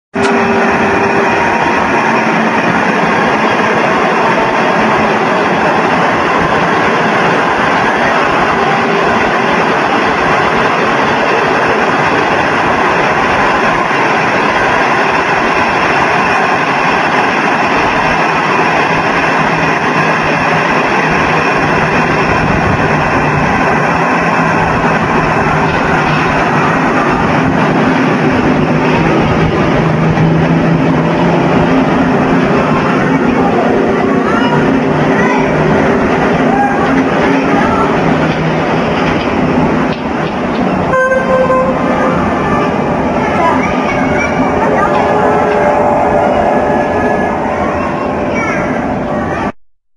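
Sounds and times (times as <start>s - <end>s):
trains rumbling past: 0.1s - 49.6s.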